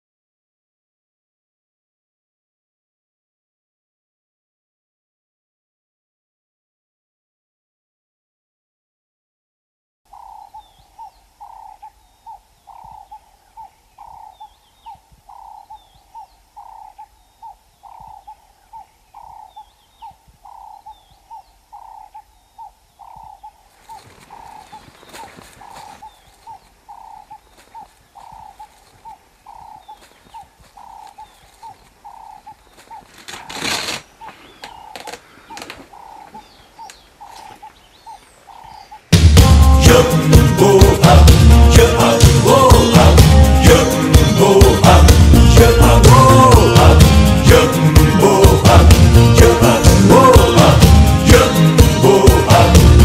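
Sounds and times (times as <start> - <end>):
faint high bird chirps: 10.1 - 39.1
bird hooting low note: 10.1 - 39.2
rustling noise: 23.6 - 38.4.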